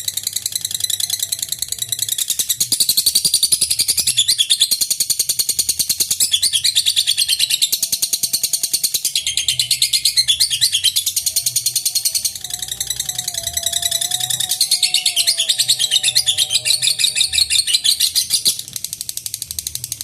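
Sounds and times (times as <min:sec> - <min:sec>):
shrill chattering bird chirps: 0:00.1 - 0:19.4.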